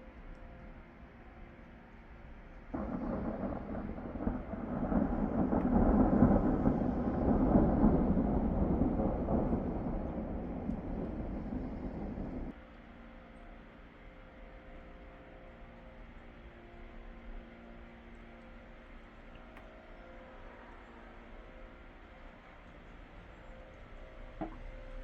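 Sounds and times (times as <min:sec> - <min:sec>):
thunder rumbling: 0:02.7 - 0:12.6.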